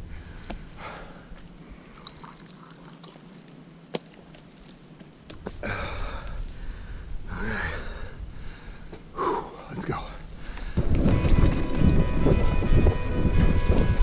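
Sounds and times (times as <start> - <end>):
person sipping and swallowing: 1.9 - 3.2.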